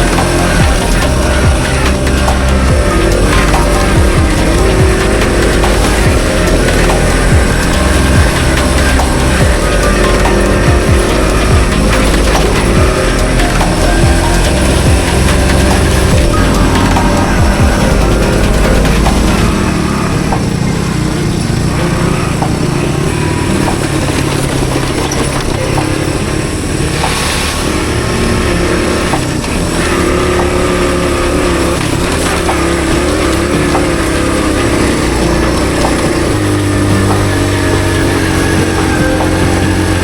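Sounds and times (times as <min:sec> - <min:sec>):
small motorcycle engine running: 0:00.0 - 0:40.0
wind and riding noise: 0:00.0 - 0:40.0.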